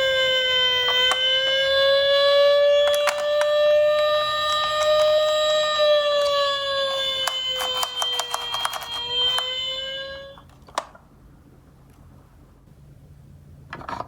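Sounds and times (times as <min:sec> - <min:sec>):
toy electronic siren wailing: 0:00.0 - 0:10.6.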